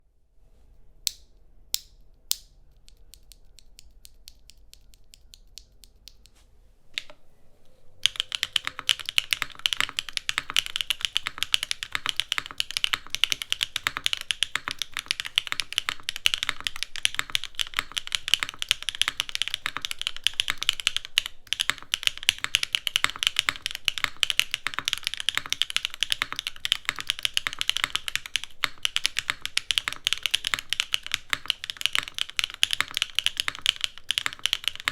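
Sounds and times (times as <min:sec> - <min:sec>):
mechanical keyboard typing: 0:08.0 - 0:34.9.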